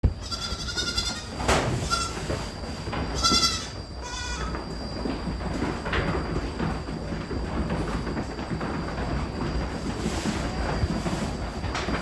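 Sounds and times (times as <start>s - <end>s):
goats bleating: 0.2s - 2.2s, 3.2s - 4.5s.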